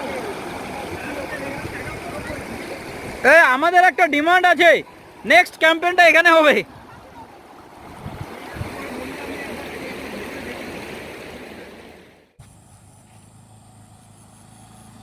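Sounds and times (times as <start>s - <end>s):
river water rushing: 0.0s - 12.3s.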